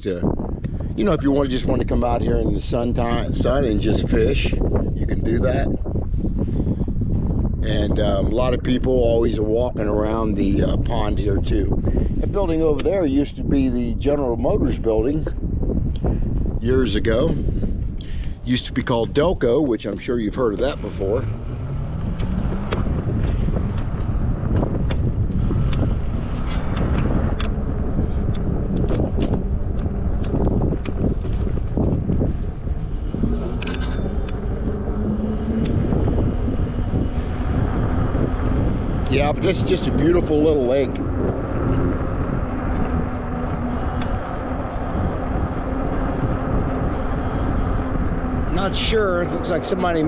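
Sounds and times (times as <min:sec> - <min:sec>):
wind rumbling on microphone: 0:00.0 - 0:50.0
sharp clicks and knocks: 0:22.0 - 0:24.0, 0:24.8 - 0:27.6.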